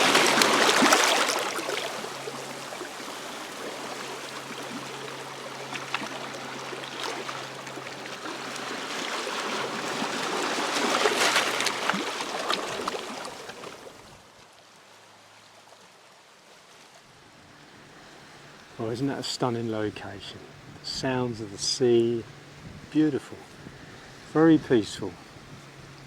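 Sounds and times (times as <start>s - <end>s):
sea wave washing up stony shore: 0.0s - 14.0s.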